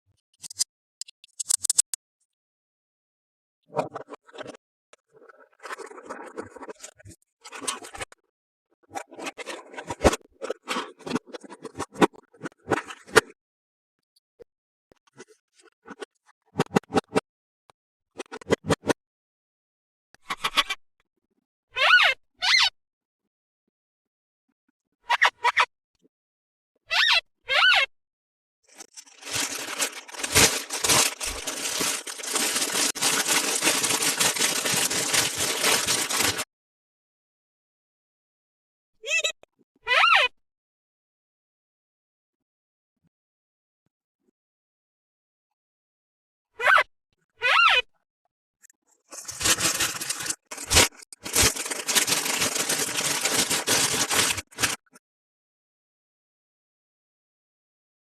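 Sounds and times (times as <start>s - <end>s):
plastic packaging crinkling: 28.7s - 36.4s, 49.1s - 54.8s.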